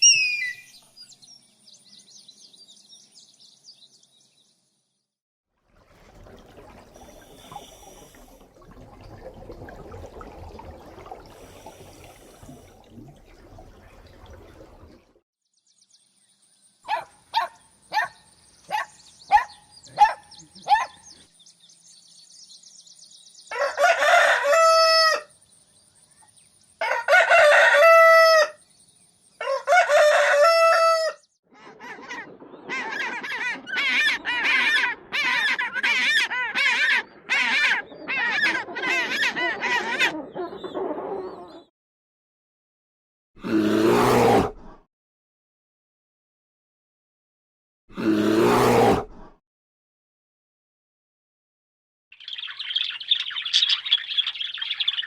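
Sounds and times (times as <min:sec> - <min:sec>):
rooster crowing: 0:23.5 - 0:25.3, 0:26.8 - 0:28.6, 0:29.4 - 0:31.2.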